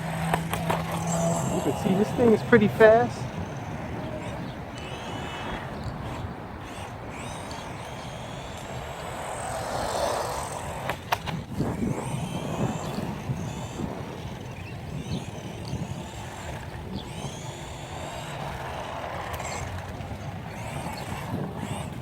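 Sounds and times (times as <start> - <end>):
sharp clicks: 0.0 - 3.6, 4.2 - 13.4
toy car motor whining: 0.0 - 22.0
tyres on ground: 0.0 - 22.0.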